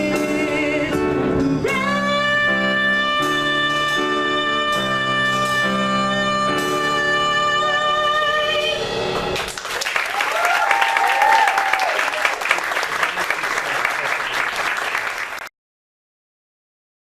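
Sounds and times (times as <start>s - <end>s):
music accompaniment: 0.0s - 10.2s
audience applause: 9.4s - 15.5s
whooping cheer: 9.8s - 15.1s.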